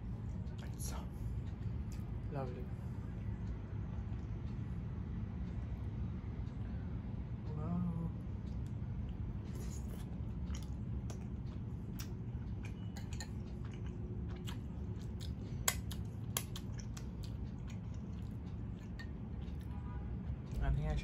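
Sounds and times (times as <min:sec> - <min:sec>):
low background noise: 0:00.0 - 0:21.0
person chewing: 0:08.4 - 0:19.8
wet mouth clicks and smacks: 0:10.4 - 0:11.3, 0:11.9 - 0:19.7.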